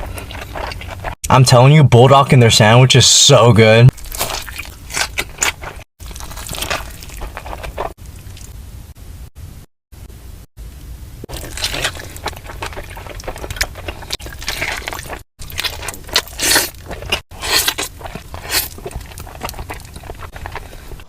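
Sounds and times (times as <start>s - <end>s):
wet squishy chewing: 0.0s - 1.2s, 3.9s - 8.6s, 11.3s - 21.0s
crunching of fried chicken: 3.9s - 8.5s, 11.3s - 21.0s.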